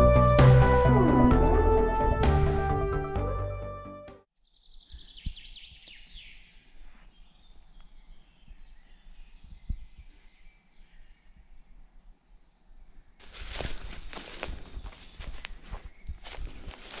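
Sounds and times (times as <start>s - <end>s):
background music: 0.0s - 4.2s
songbird singing: 4.3s - 17.0s.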